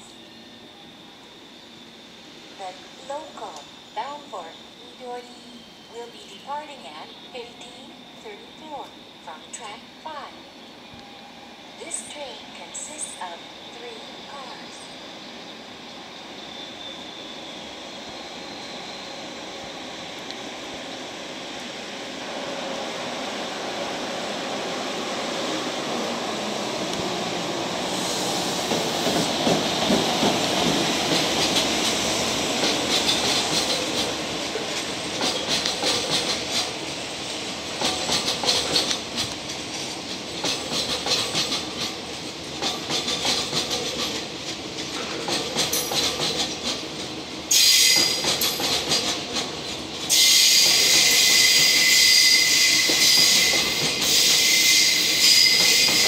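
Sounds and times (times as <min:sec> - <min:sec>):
high-pitched wheel squeal: 0:50.1 - 0:56.0.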